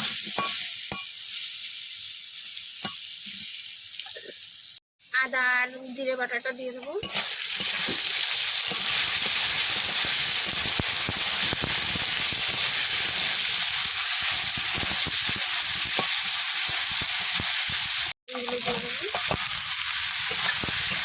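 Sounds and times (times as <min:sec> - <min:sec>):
potatoes sizzling in hot oil: 0:00.0 - 0:21.0.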